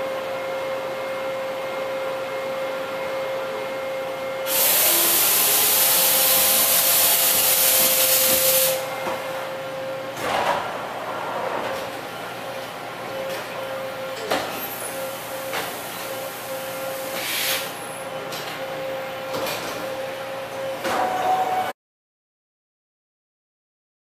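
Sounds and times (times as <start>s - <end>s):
machining center high-pitched hum: 0.0s - 21.8s
loud hiss: 4.5s - 8.9s, 17.0s - 17.7s.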